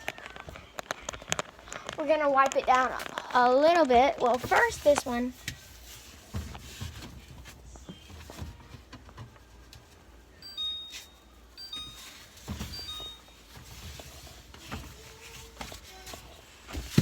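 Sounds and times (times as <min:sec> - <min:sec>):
food containers knocking and rustling: 0:00.0 - 0:09.9, 0:11.6 - 0:17.0
high beeps: 0:10.4 - 0:13.4.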